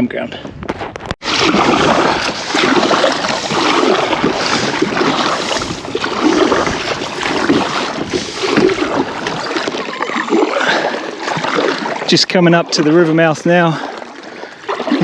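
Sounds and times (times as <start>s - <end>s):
wind buffeting microphone: 0.0s - 10.9s
kayak paddle splashing: 1.2s - 15.0s.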